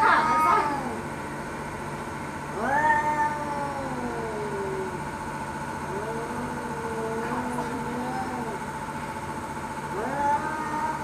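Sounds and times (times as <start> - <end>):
cat yowling: 0.0 - 1.0, 2.5 - 5.0, 5.9 - 8.6, 9.9 - 11.0.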